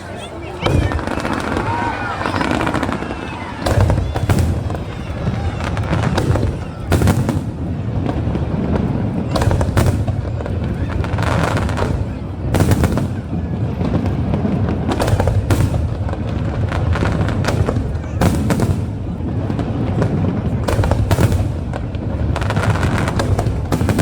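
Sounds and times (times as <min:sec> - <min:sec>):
fireworks bangs and crackles: 0:00.0 - 0:24.0
heavy firework booms: 0:00.6 - 0:24.0.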